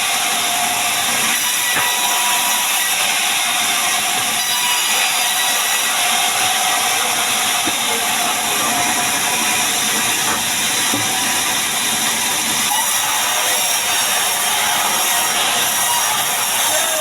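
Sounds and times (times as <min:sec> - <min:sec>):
chainsaw sawing timber: 0:00.0 - 0:17.0.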